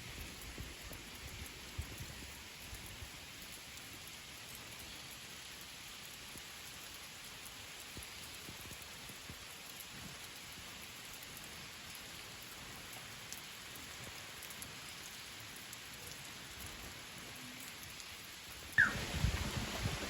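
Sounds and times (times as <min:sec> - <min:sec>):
steady rain hiss: 0:00.0 - 0:20.0
brief high chirp: 0:18.8 - 0:19.0.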